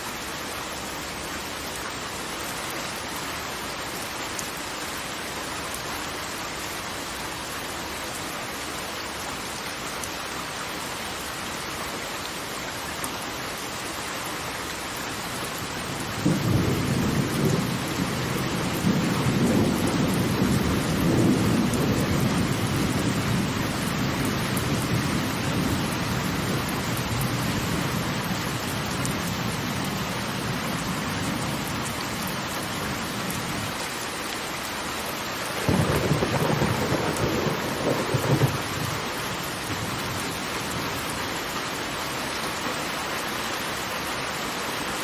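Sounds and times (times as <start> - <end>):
thunder rumbling: 35.6 - 40.3.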